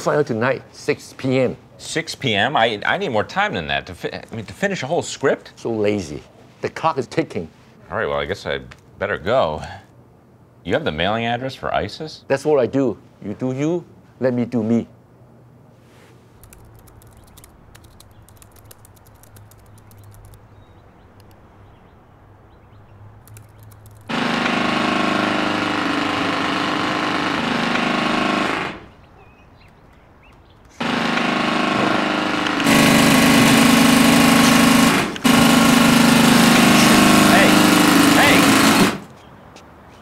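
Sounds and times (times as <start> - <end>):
motor-driven machine running: 23.3 - 28.9, 30.8 - 39.1.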